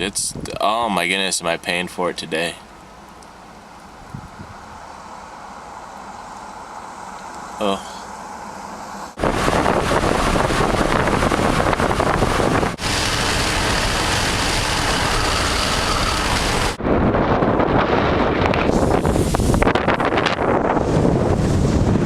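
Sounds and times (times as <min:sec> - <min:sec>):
strong wind across microphone: 0:04.0 - 0:04.9, 0:08.6 - 0:22.0.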